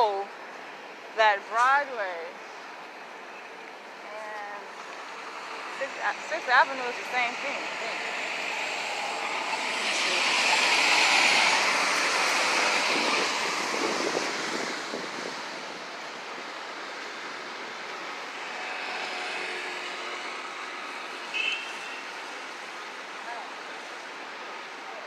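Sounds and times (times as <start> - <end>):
steady traffic hum: 0.0 - 25.0
vehicle passing: 4.9 - 16.6, 17.2 - 21.3.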